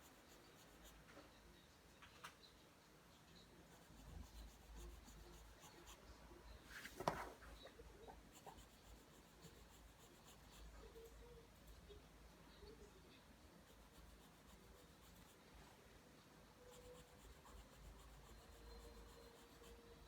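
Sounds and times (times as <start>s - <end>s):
pencil scratching on paper: 0.0s - 1.1s, 3.4s - 6.0s, 8.0s - 11.8s, 13.6s - 15.4s, 16.7s - 20.0s.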